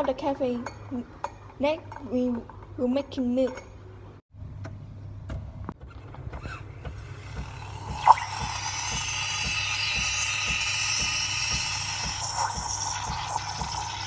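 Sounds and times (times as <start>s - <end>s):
steam wand hissing: 7.2s - 14.0s.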